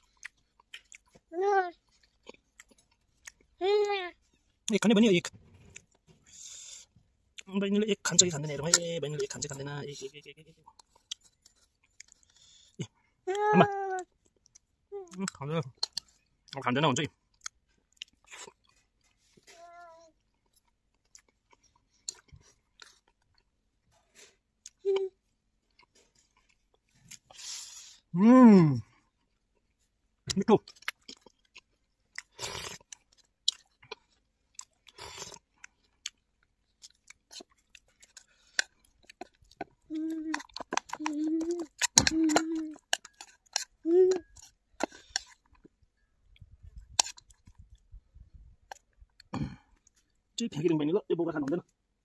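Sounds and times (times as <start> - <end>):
chewing and lip-smacking: 0.0 - 3.6, 10.5 - 13.0, 14.0 - 16.6, 17.2 - 19.5, 20.1 - 27.5, 29.0 - 48.0.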